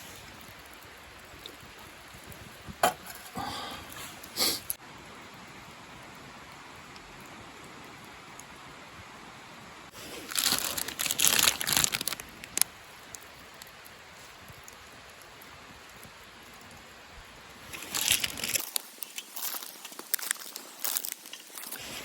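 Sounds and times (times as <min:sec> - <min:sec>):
steady hiss: 0:00.0 - 0:22.0
crunching and crinkling: 0:09.9 - 0:12.7, 0:17.6 - 0:22.0.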